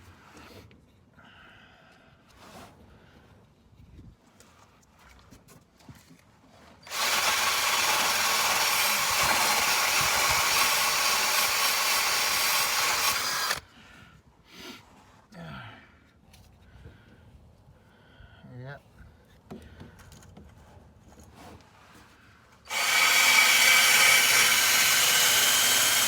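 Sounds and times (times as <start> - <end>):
cordless drill scrubbing rust: 6.8 - 13.6, 22.7 - 26.0.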